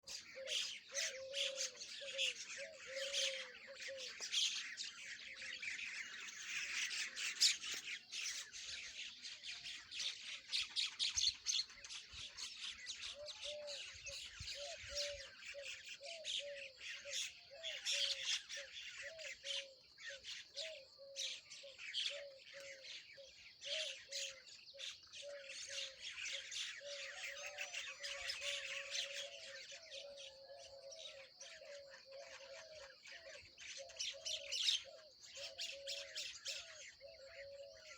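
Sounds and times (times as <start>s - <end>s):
birds chattering and squawking: 0.0s - 37.9s.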